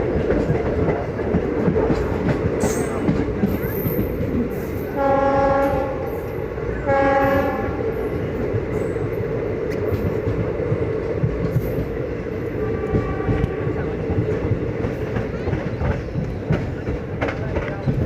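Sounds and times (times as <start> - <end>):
train wheels rumbling on rail: 0.0 - 18.0
locomotive horn blasts: 5.0 - 7.9, 12.6 - 13.7.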